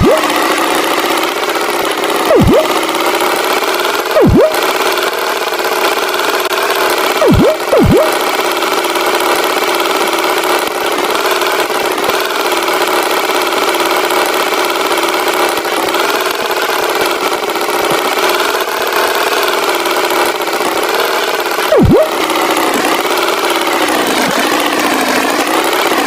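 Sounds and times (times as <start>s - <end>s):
swooping sound effects: 0.0s - 0.4s, 2.3s - 2.9s, 4.2s - 4.7s, 7.2s - 8.3s, 21.7s - 22.2s
cartoon tractor engine running: 0.0s - 26.0s.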